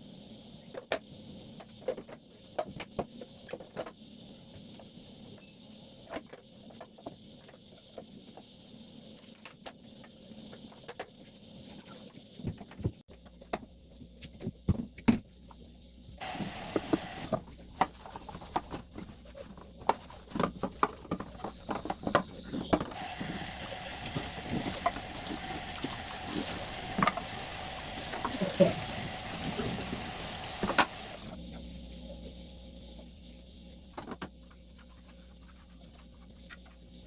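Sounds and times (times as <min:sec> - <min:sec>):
tap running water: 0:16.2 - 0:17.4, 0:21.2 - 0:31.4.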